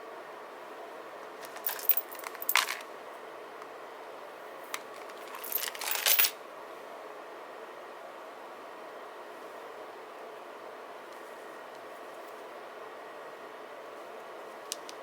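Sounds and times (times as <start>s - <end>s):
paper materials clicking and rustling: 1.4s - 2.8s.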